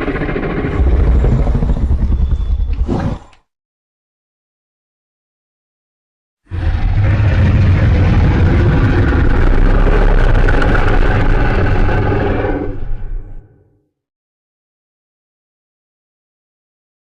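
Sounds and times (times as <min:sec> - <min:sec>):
deep monster roar: 0:06.5 - 0:13.6.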